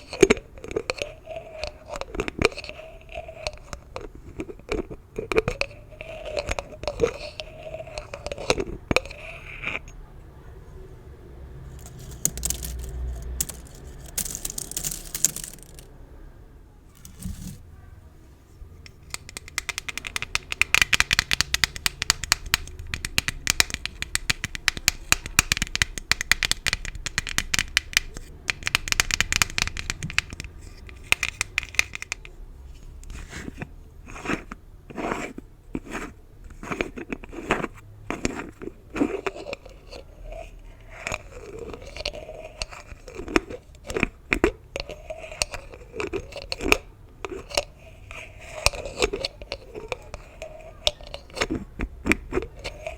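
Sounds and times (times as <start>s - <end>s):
gift bows crinkling: 11.7s - 15.9s, 17.0s - 17.6s.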